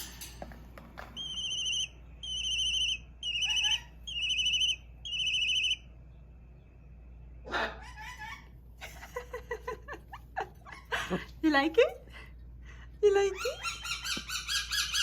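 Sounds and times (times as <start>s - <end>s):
hawk chicks crying through phone: 1.2s - 5.8s.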